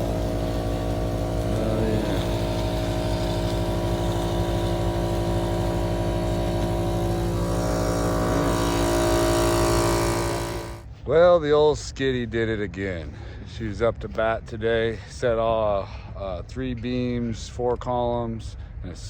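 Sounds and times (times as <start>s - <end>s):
diesel loader engine running: 0.0s - 10.8s.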